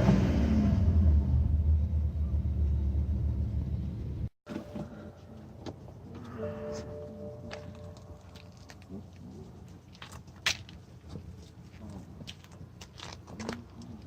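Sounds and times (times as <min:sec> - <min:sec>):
diesel engine low rumble: 0:00.0 - 0:14.0
soft steady tone: 0:04.6 - 0:09.0.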